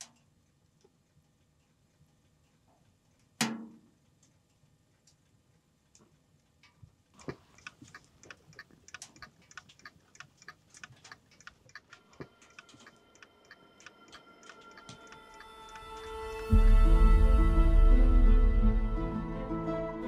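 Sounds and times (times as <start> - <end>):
rapid ticking clicks: 7.2 - 16.1
soft music: 12.0 - 20.0.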